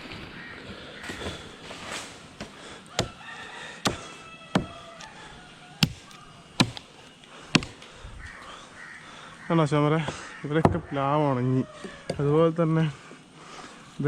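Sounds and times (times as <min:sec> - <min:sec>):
blade chopping dry wood: 0:02.0 - 0:05.2, 0:05.8 - 0:07.9.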